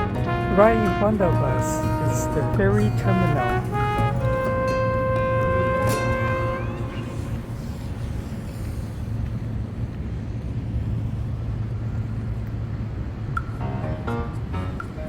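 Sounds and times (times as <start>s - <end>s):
music: 0.0s - 8.7s, 13.6s - 15.0s
passing vehicles rumbling: 0.0s - 15.0s.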